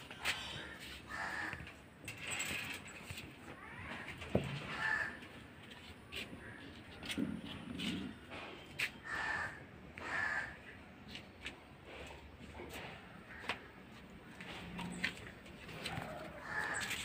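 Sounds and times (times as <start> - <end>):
crow-like caws: 0.4 - 1.8, 3.6 - 5.3, 9.0 - 10.7, 13.2 - 13.7, 15.9 - 17.0.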